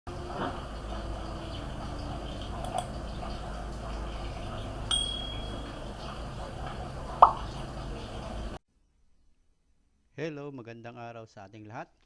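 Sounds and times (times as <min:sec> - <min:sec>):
background hum and hiss: 0:00.1 - 0:08.6
short high ding: 0:04.9 - 0:05.7.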